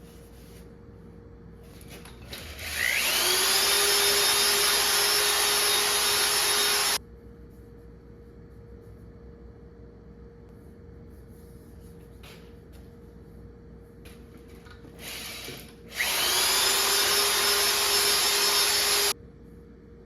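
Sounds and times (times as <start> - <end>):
power drill whining: 2.3 - 7.0, 15.0 - 19.2.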